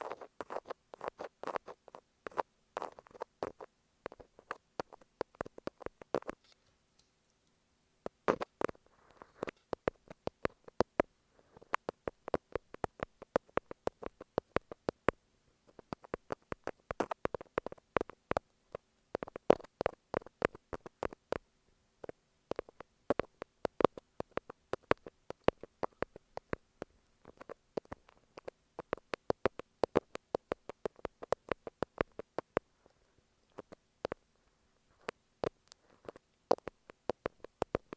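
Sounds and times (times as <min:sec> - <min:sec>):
thumbtacks tapping on tape: 0:09.4 - 0:18.6, 0:19.2 - 0:21.4, 0:22.5 - 0:26.6, 0:27.3 - 0:32.6, 0:35.0 - 0:37.9.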